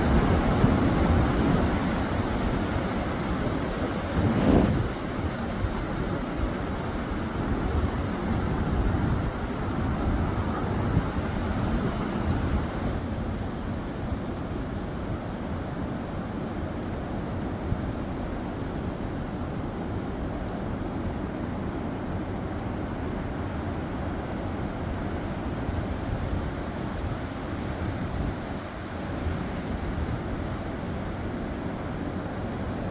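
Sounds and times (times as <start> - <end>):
gusty wind blowing: 0.0 - 15.4.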